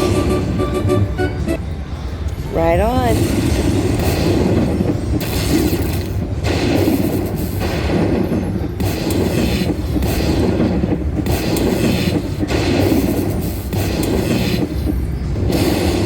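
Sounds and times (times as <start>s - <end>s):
slot machine sounds: 0.0s - 1.7s.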